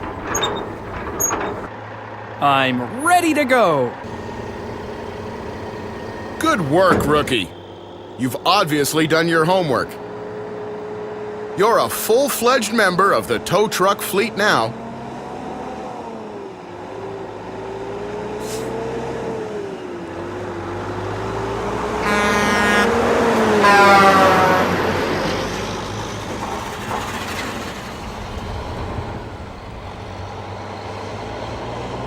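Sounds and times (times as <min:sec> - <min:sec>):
truck driving past: 0:04.1 - 0:11.5, 0:14.5 - 0:32.0
truck horn: 0:22.0 - 0:25.3.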